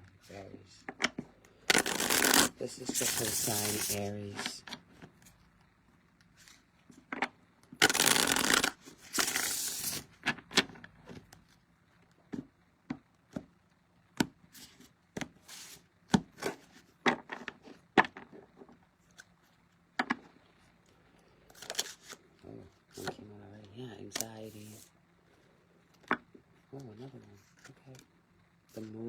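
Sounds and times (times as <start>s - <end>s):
cards being shuffled: 1.6s - 5.3s, 7.8s - 10.7s, 21.5s - 22.2s, 24.2s - 24.9s.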